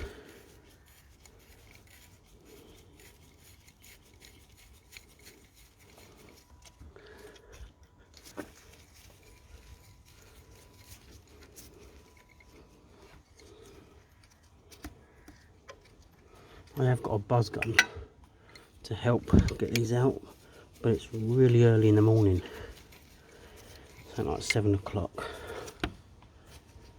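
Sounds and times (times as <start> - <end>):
hand tools scraping: 0.0 - 26.9
metallic clicks of hand tools: 17.5 - 18.7.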